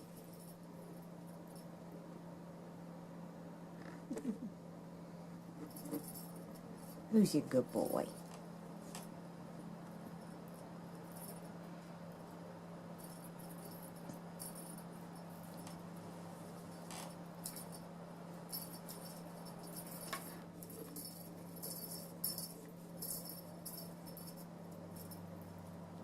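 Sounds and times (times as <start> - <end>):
steady low hum: 0.0 - 26.0
jingling toy tinkling: 20.7 - 25.3.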